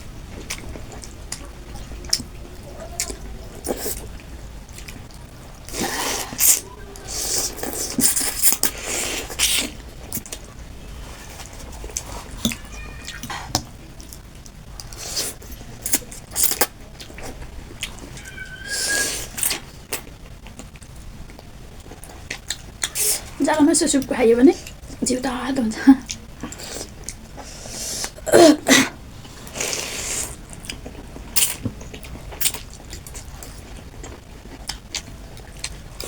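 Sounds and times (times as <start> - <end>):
chewing: 0.3 - 10.5, 29.2 - 36.0
slurping noodles: 29.5 - 30.4.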